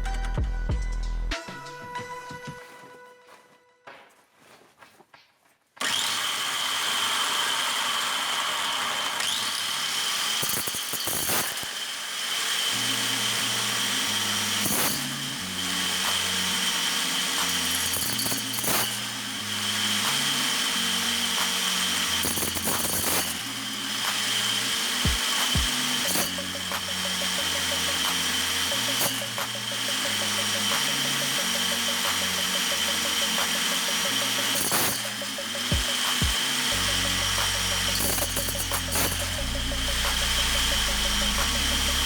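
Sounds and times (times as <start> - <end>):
music with low bass line: 0.0 - 1.4, 35.7 - 42.0
angle grinder whining: 5.8 - 42.0
harsh grinding bursts: 5.8 - 42.0.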